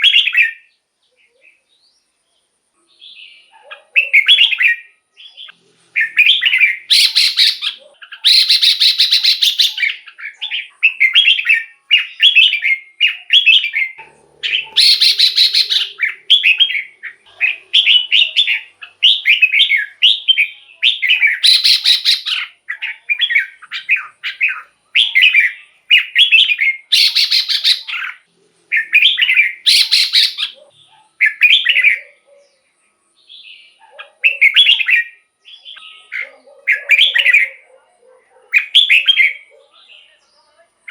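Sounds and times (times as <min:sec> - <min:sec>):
bulbul song: 0:02.9 - 0:37.7
harsh rasping bird notes: 0:13.8 - 0:25.1.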